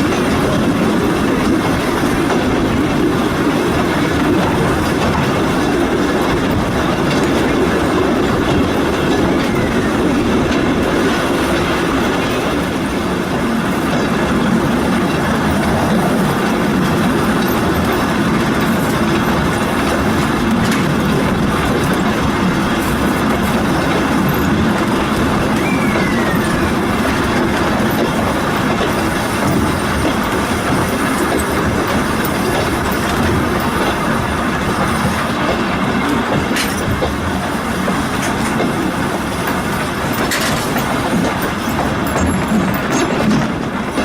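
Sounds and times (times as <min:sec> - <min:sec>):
wheels rumbling on rail: 0:00.0 - 0:44.0
short falling whine: 0:25.4 - 0:27.2.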